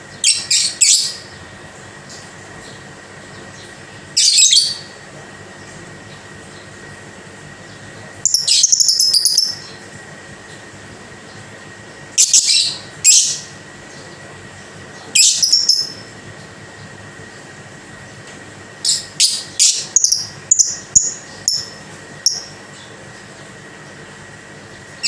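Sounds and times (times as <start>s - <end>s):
steady hum with thin tone: 0.0s - 25.0s
lovebird chattering calls: 8.2s - 9.8s, 12.2s - 13.5s, 15.2s - 16.1s, 18.8s - 22.5s.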